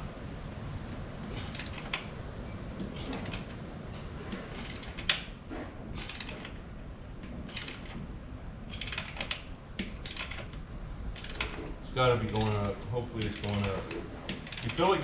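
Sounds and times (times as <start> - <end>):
wrench clicking on bolt: 1.4 - 2.1, 3.0 - 3.5, 4.6 - 5.3, 6.0 - 6.6, 7.5 - 8.0, 8.7 - 10.6, 11.2 - 11.7, 12.3 - 14.9.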